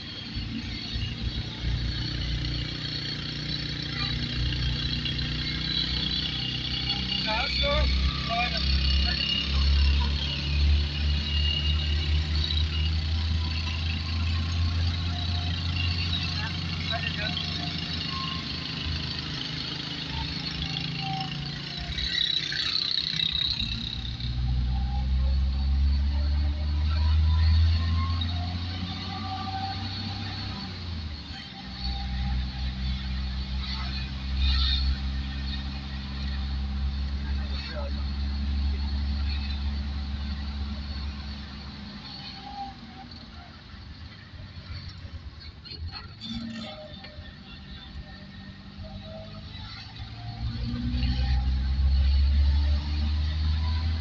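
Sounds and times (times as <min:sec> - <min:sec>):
car engine running: 0:00.0 - 0:28.9.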